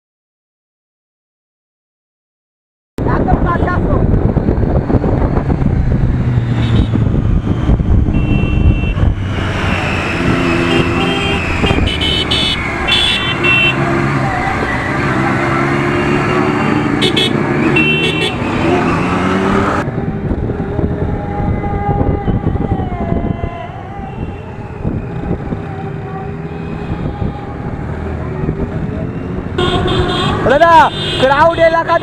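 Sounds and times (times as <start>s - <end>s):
wind on microphone: 3.0s - 12.9s, 18.7s - 29.6s
road traffic engines: 3.0s - 32.0s
vehicle horns honking: 6.5s - 7.2s, 8.1s - 19.8s, 29.1s - 32.0s.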